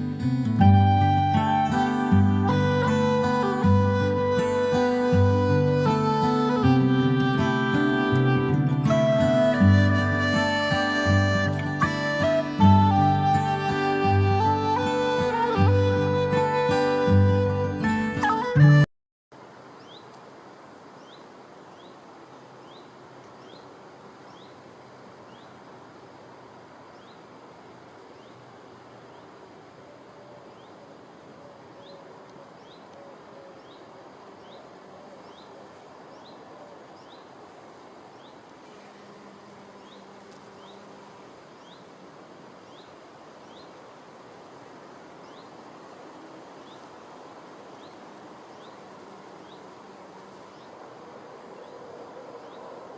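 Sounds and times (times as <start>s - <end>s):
even outdoor hiss: 0.0s - 52.9s
bee wings humming: 0.7s - 18.9s, 38.4s - 42.2s, 45.7s - 52.9s.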